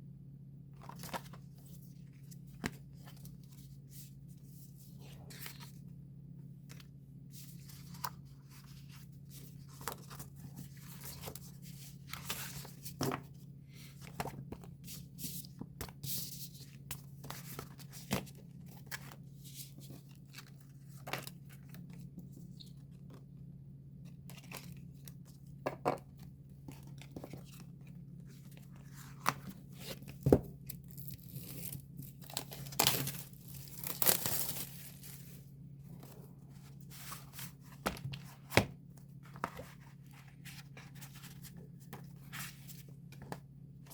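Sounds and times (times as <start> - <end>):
paper and plastic packaging torn: 30.9 - 35.0.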